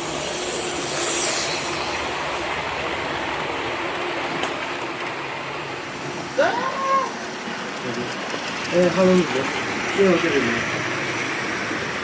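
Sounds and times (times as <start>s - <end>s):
model train running: 0.0s - 12.0s.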